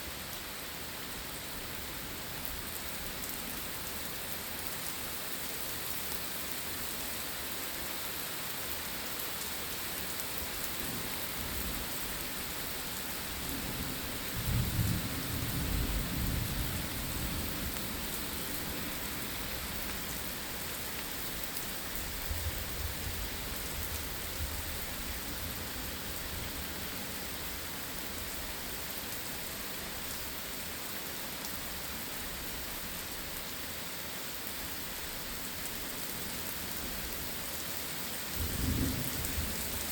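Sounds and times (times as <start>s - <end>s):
steady rain falling: 0.0s - 39.9s
thunder rumbling: 38.4s - 39.8s.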